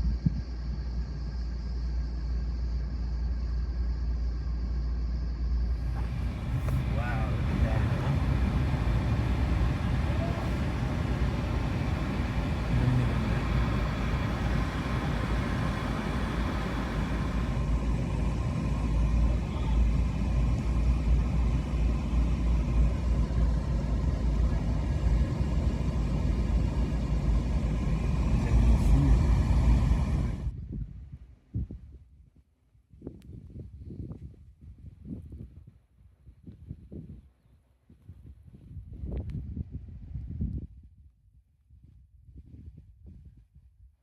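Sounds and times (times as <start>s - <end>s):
car engine and road rumble: 0.0s - 30.8s
high hiss: 5.6s - 30.5s.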